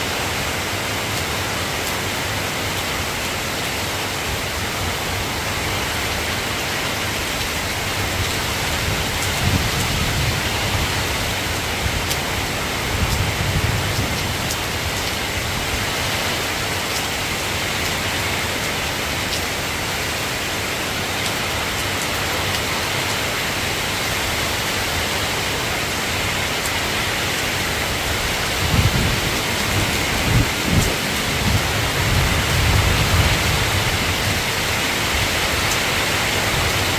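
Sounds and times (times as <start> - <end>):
rain falling: 0.0 - 36.9
thunder rumbling: 27.5 - 35.6.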